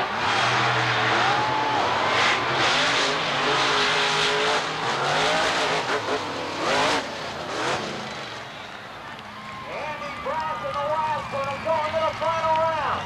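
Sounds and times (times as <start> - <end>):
monster truck engines revving: 0.0 - 13.0.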